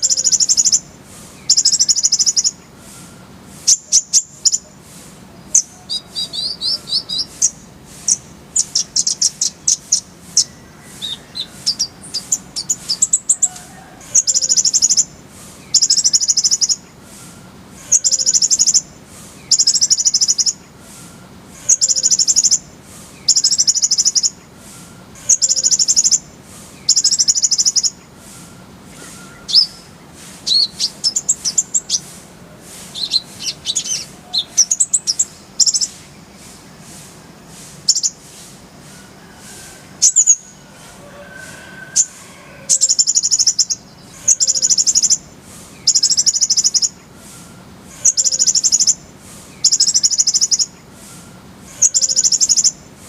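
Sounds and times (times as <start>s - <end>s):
sunbird singing trills: 0.0s - 40.8s, 41.5s - 52.9s.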